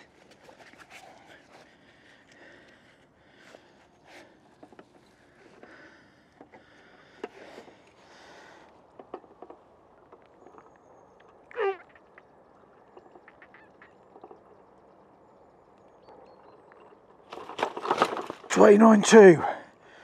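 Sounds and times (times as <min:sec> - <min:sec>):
handling clicks and rustles: 0:00.0 - 0:11.4, 0:15.7 - 0:19.4.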